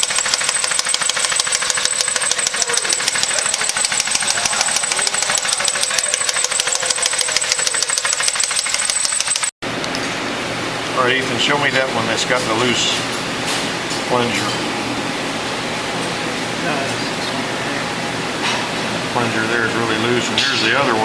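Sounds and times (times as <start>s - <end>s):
engine ticking rapidly: 0.0s - 9.6s.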